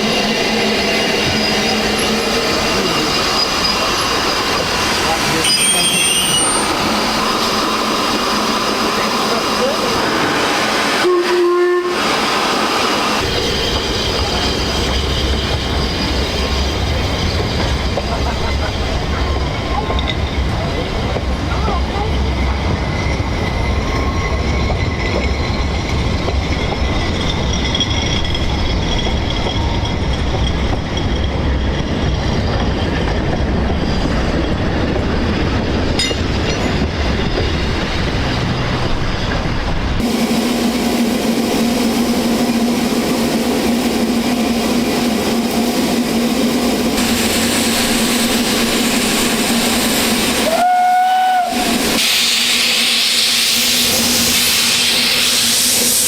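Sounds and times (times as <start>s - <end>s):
steam train rumbling: 0.0s - 56.0s
steam whistle blast: 10.9s - 12.5s, 50.3s - 54.0s.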